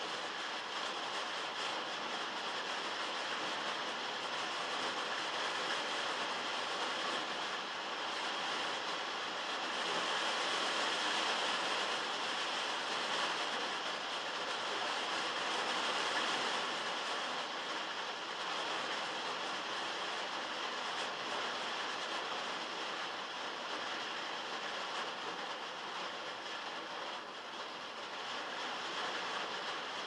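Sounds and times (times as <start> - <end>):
heavy rain on metal roof: 0.0 - 30.0.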